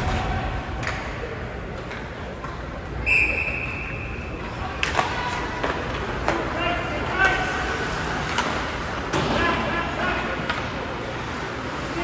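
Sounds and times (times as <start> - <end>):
high whistle blast: 3.0 - 4.2.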